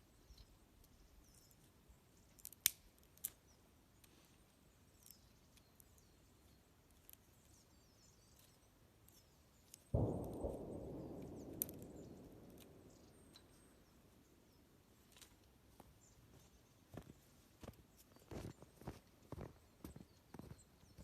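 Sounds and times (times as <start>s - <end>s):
small birds chirping: 0.0s - 21.0s
campfire crackling and popping: 9.9s - 14.2s
low rush of noise: 10.0s - 14.8s.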